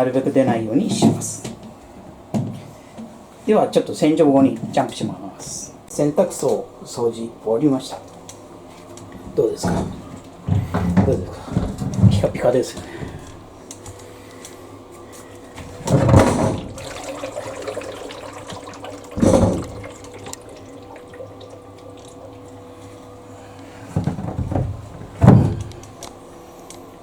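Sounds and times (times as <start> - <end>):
faint steady hum: 0.0 - 27.0
water splashing: 16.4 - 22.5.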